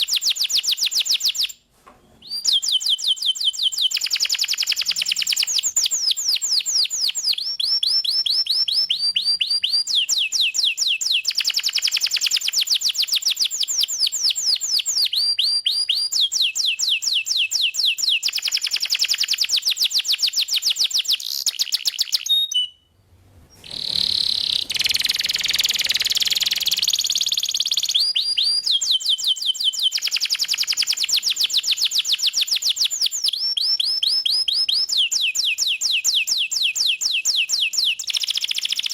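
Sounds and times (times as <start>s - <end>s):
canary singing trills: 23.6s - 38.9s.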